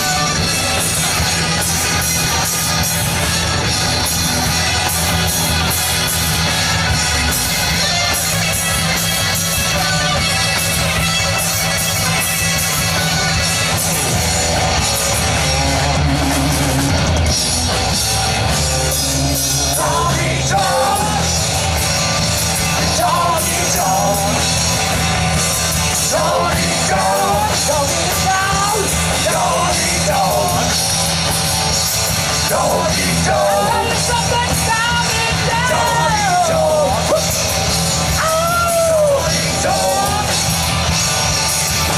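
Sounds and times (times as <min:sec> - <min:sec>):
rock band playing: 0:00.0 - 0:41.9
person singing and yelling: 0:18.8 - 0:21.6, 0:22.5 - 0:24.8, 0:25.8 - 0:30.9, 0:32.3 - 0:40.8.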